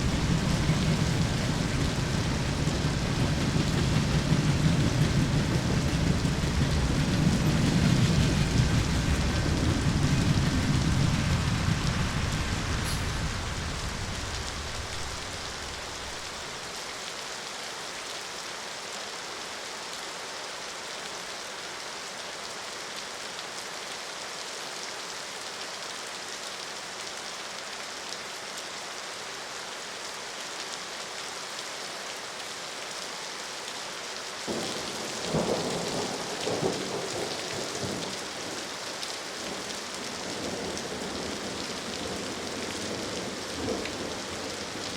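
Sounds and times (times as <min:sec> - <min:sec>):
thunder cracks: 0:00.0 - 0:16.4
thunder rumbling: 0:00.0 - 0:16.6, 0:34.5 - 0:38.7, 0:39.4 - 0:44.9
heavy rain hissing: 0:00.0 - 0:44.9.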